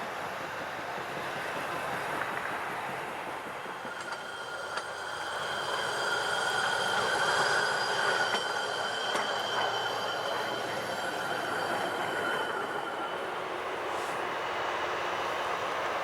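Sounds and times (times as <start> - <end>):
train rumble: 0.0 - 16.0
rail grinder high-pitched squeal: 3.9 - 15.3.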